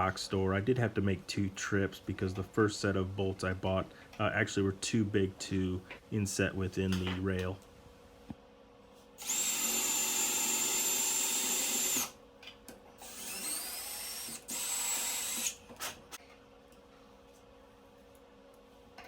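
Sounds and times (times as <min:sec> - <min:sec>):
power drill whining: 0:09.2 - 0:12.2, 0:13.0 - 0:15.6.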